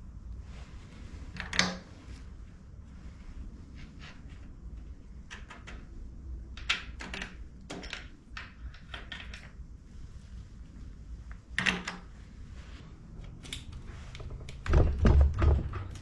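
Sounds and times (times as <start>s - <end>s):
low steady hum: 0.0s - 16.0s
tools clicking and knocking: 6.6s - 9.6s.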